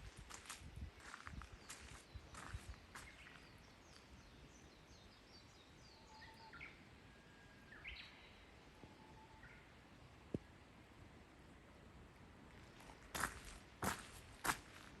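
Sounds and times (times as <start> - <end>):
small birds chirping: 0.3 - 6.8.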